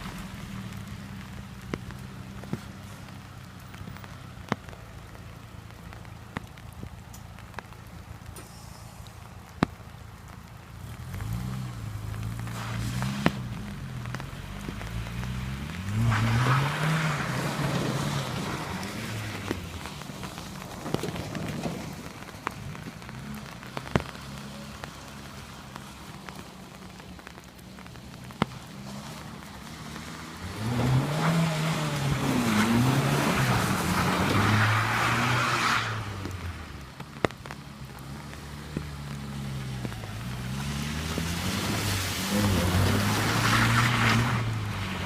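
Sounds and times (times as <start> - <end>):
pickup engine revving: 29.7 - 36.7.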